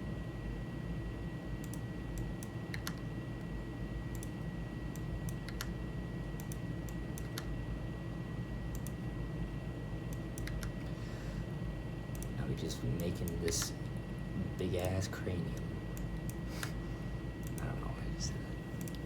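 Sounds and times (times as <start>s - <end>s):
low background hum: 0.0s - 19.0s
mouse and keyboard clicking: 2.7s - 3.0s, 5.3s - 5.7s, 10.1s - 10.8s.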